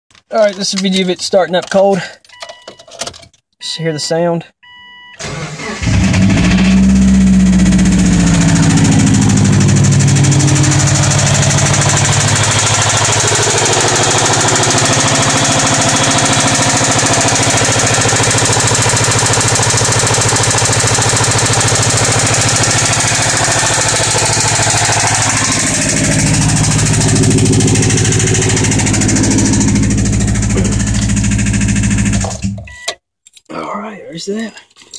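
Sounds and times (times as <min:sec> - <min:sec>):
car engine idling: 0:05.3 - 0:32.7
engine knocking: 0:06.1 - 0:32.4.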